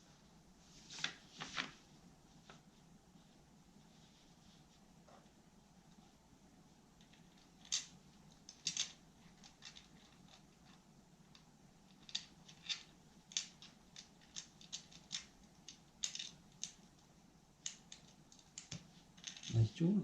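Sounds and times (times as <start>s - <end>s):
stone pieces clicking together: 11.9s - 16.8s.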